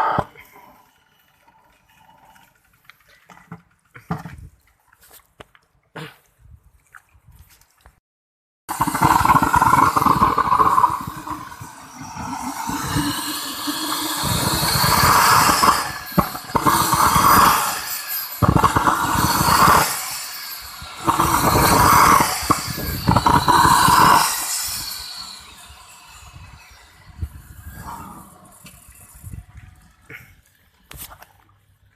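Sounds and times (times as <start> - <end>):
model turbojet engine roaring: 8.7 - 30.2.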